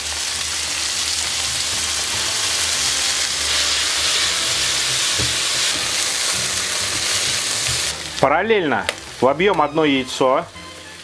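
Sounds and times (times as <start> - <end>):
vegetables sizzling in hot oil: 0.0 - 11.0
spatula knocks: 5.2 - 5.9.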